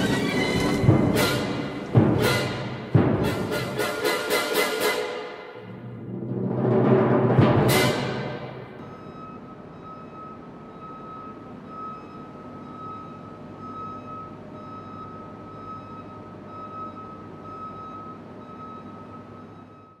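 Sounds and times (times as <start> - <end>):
reversing alarm beeping: 8.8 - 20.0.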